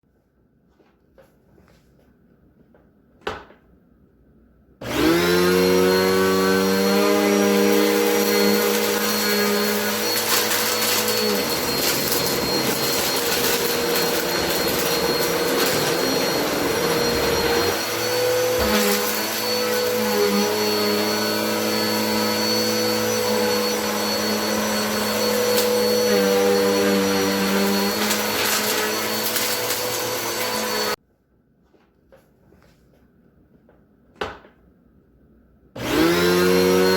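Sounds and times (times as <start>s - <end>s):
vacuum cleaner running: 4.8s - 31.0s, 35.8s - 36.9s.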